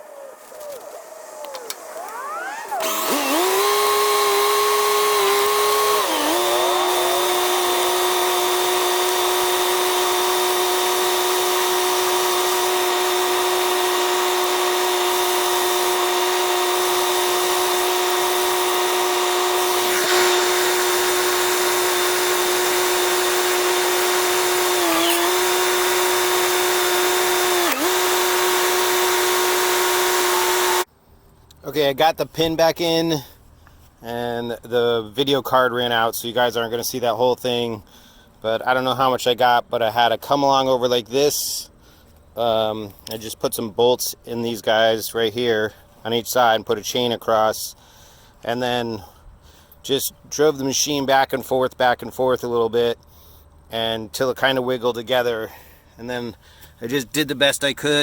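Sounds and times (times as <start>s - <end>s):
power tool motor whining: 0.0s - 30.9s.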